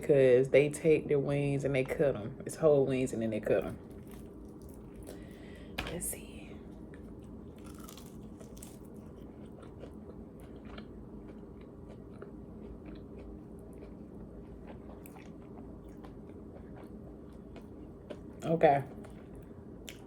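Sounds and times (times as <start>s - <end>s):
low steady hum: 0.0s - 20.0s
person chewing crackly food: 3.7s - 5.6s, 6.7s - 20.0s.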